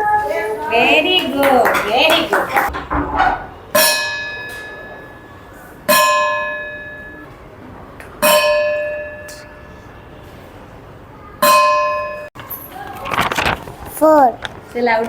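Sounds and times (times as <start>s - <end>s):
bell ringing: 3.8s - 7.3s.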